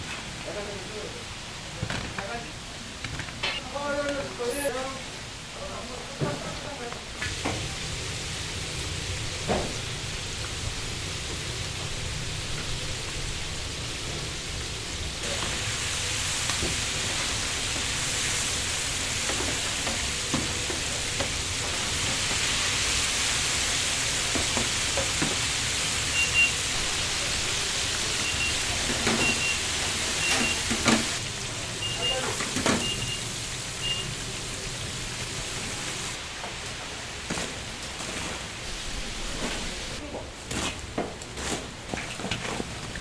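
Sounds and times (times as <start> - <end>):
chicken deep-frying in oil: 6.6 - 40.8
short high beeps: 31.8 - 33.2, 33.8 - 34.1.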